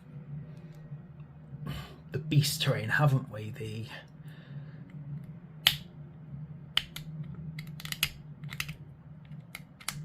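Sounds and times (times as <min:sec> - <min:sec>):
low hum: 0:00.0 - 0:10.0
plastic pieces clicking: 0:06.8 - 0:10.0.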